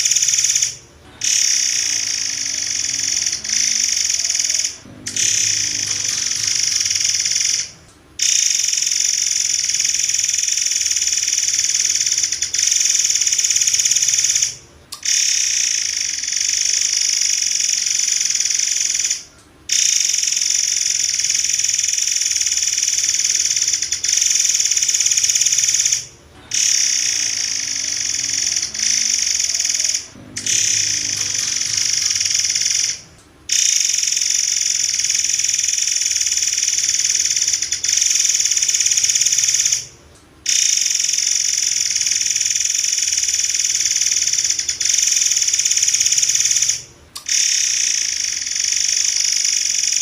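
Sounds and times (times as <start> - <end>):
bird song rapid high notes: 0.0 - 9.7.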